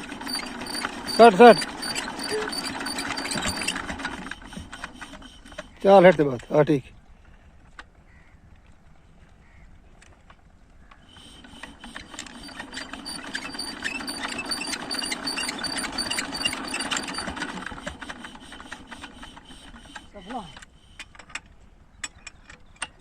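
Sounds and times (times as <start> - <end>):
diesel engine knocking: 0.0 - 6.3, 11.5 - 20.5.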